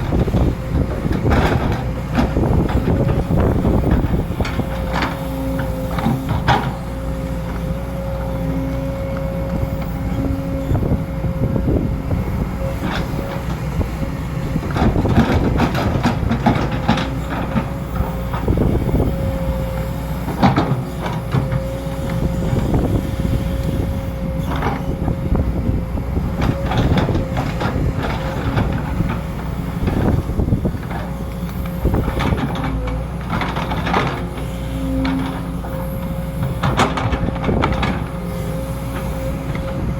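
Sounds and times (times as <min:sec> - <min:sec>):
excavator diesel engine hum: 0:00.0 - 0:39.9.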